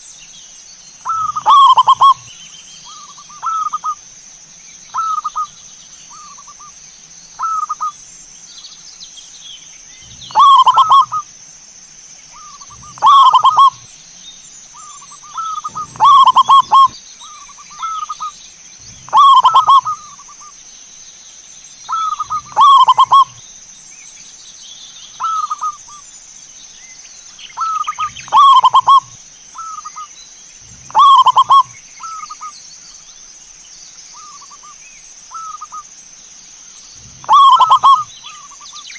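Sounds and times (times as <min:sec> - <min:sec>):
dove cooing: 0:01.0 - 0:02.3, 0:02.9 - 0:04.0, 0:04.9 - 0:05.5, 0:07.4 - 0:07.9, 0:10.0 - 0:11.3, 0:12.4 - 0:13.8, 0:14.8 - 0:20.4, 0:21.9 - 0:23.4, 0:25.2 - 0:25.8, 0:27.6 - 0:32.5, 0:37.0 - 0:38.6.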